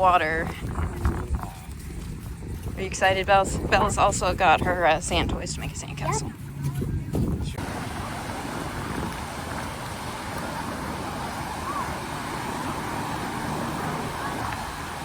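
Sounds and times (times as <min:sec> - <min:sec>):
wind: 0:00.0 - 0:15.0
surf: 0:06.2 - 0:15.0.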